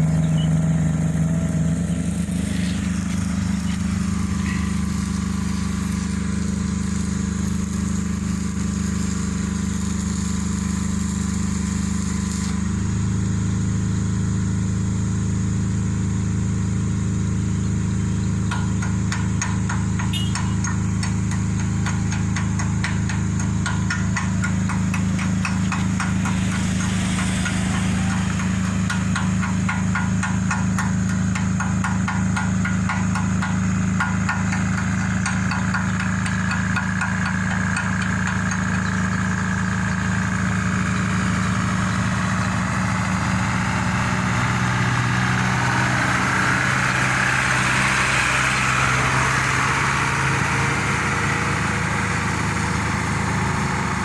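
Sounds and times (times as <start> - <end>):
diesel engine running under load: 0.0 - 54.0
rapid metallic knocking: 18.4 - 42.8
rushing noise: 25.0 - 30.5.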